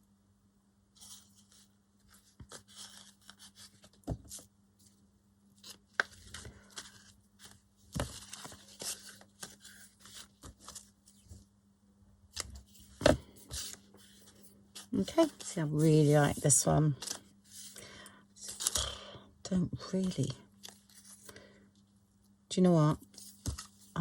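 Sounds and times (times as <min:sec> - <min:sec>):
handling rustle: 0:01.0 - 0:04.5, 0:05.6 - 0:11.4, 0:12.4 - 0:17.8, 0:23.0 - 0:24.0.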